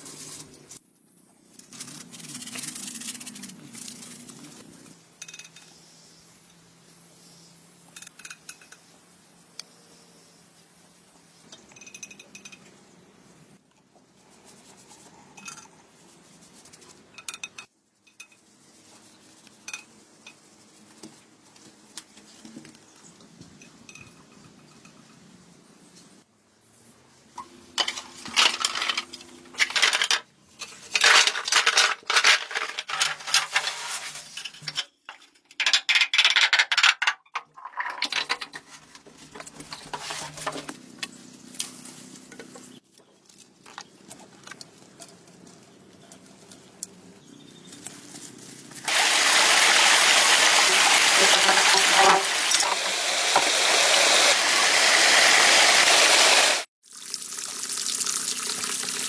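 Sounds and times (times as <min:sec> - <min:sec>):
clinking and scraping knocks: 0:27.8 - 0:38.7
water pouring into pool: 0:48.9 - 0:59.0.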